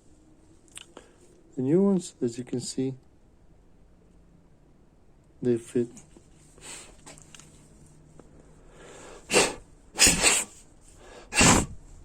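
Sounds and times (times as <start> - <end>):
puffs of breath: 6.4 - 7.2, 8.6 - 11.8.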